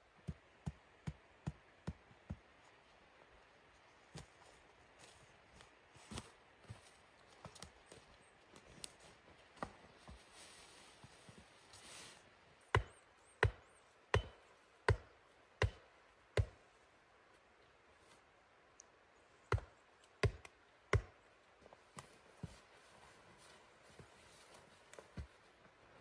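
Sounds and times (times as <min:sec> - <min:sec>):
axe chopping wood: 0:12.8 - 0:15.8, 0:16.4 - 0:16.6, 0:19.5 - 0:21.2.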